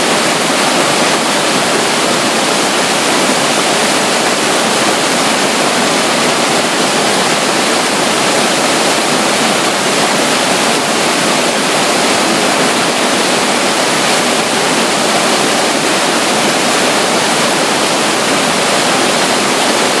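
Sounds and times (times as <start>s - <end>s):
water flowing: 0.0s - 20.0s
waterfall: 0.0s - 20.0s.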